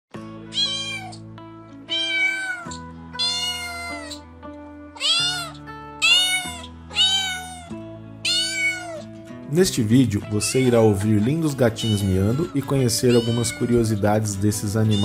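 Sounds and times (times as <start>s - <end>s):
background music of held chords: 0.1s - 15.0s
kitten meowing: 0.4s - 4.3s, 4.9s - 9.2s, 11.6s - 14.1s.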